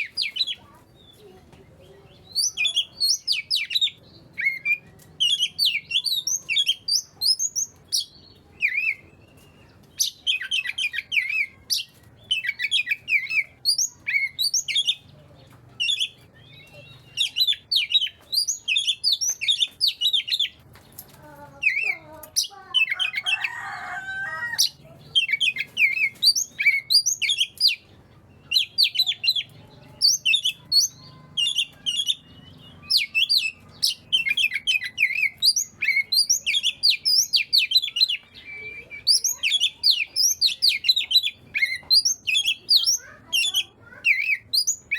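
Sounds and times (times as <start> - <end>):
harsh bird calling: 0.0 - 1.3, 2.0 - 44.9
bird singing whistled phrases: 2.2 - 15.1, 15.8 - 20.5, 24.5 - 27.8, 28.4 - 44.9.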